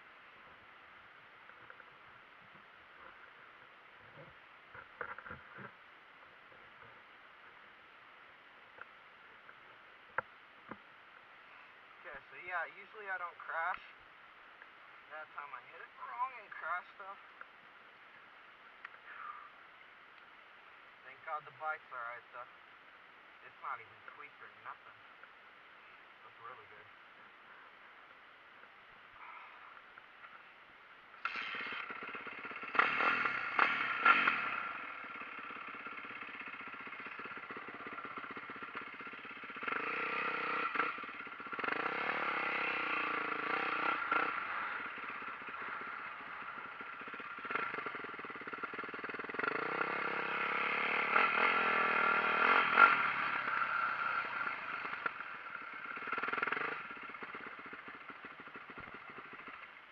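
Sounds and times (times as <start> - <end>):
dirt bike engine revving: 31.2 - 59.8.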